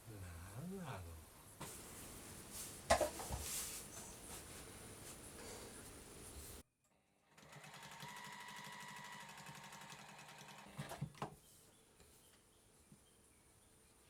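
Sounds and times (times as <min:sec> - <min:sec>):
sewing machine stitching: 0:07.4 - 0:11.1.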